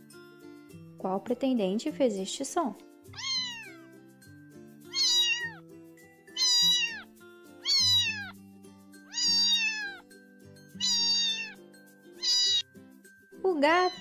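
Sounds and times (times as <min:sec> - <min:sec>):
light background music: 0:00.0 - 0:14.0
cat meowing: 0:03.1 - 0:03.8, 0:04.9 - 0:05.6, 0:06.3 - 0:08.4, 0:09.1 - 0:10.0, 0:10.8 - 0:11.6, 0:12.2 - 0:12.6, 0:13.8 - 0:14.0.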